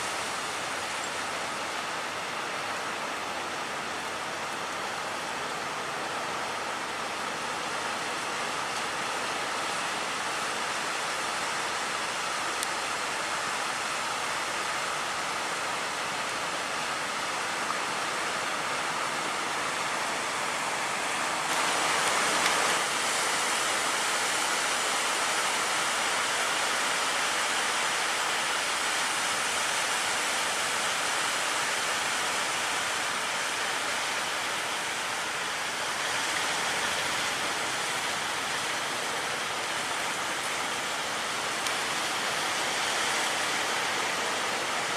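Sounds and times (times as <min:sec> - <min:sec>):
wind: 0:00.0 - 0:44.9
heavy surf rushing: 0:17.8 - 0:44.9.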